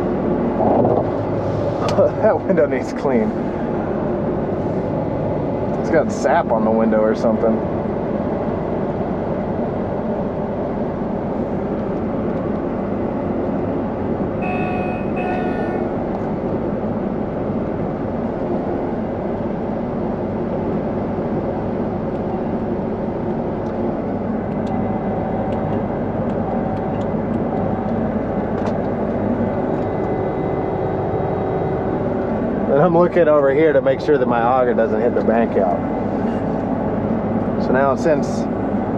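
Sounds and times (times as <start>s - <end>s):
combine harvester engine running: 0.0s - 38.9s
electronic cab alarm beeps: 14.4s - 15.9s.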